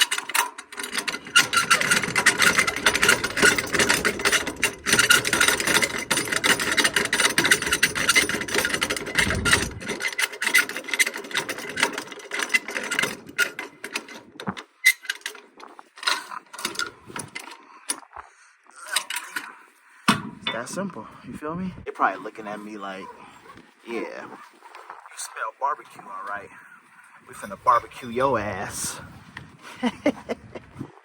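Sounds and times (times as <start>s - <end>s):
strap winder ratcheting: 0.0s - 18.2s, 18.8s - 20.6s.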